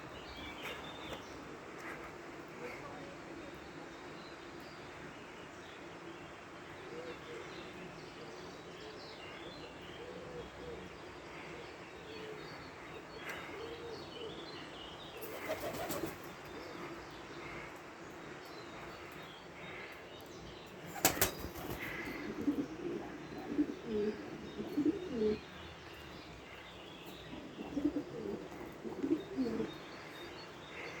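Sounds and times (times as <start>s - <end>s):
birds low wavering calls: 6.8s - 31.0s
higher bird chirps: 20.9s - 31.0s.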